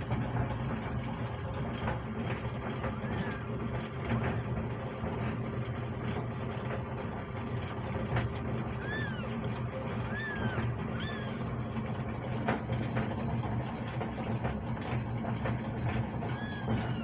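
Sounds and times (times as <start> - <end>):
steady low hum: 0.0 - 17.0
kitten meowing: 8.8 - 9.4, 10.0 - 11.5, 16.3 - 17.0.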